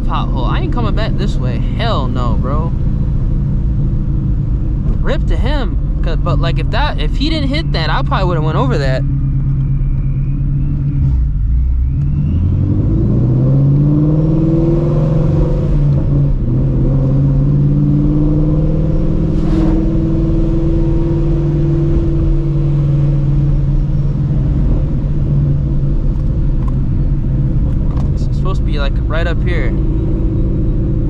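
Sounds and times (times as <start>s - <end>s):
car engine accelerating: 0.0s - 31.0s.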